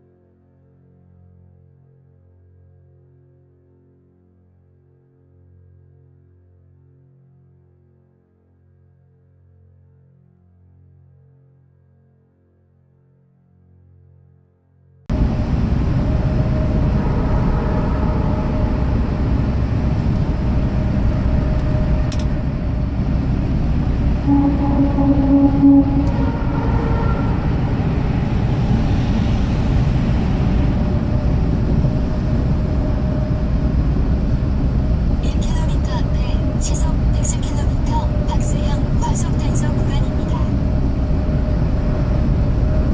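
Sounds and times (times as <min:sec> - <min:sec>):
truck engine and road rumble: 0:15.1 - 0:42.9
brief tone: 0:15.9 - 0:29.3.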